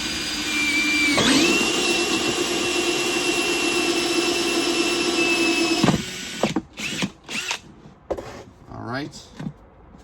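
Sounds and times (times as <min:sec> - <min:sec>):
electric drill whining: 0:00.0 - 0:07.6.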